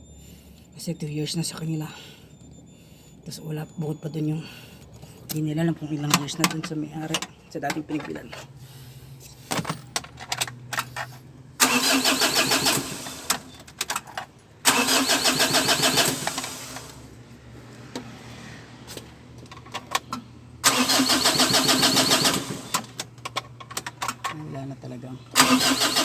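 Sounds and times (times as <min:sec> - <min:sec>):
starter motor cranking diesel engine: 0:10.8 - 0:17.2, 0:19.8 - 0:24.3, 0:25.3 - 0:26.0.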